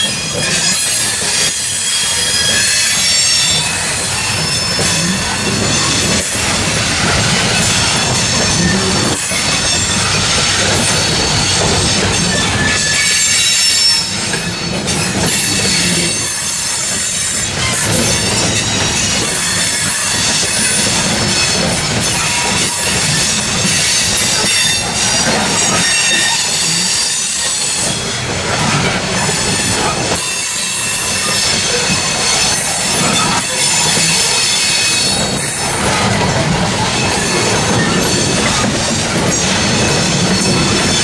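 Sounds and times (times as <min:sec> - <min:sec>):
high-pitched wheel squeal: 0:00.0 - 0:28.1
freight train low rumble: 0:00.0 - 0:41.0
steel wheels clacking over rail joints: 0:00.0 - 0:41.0.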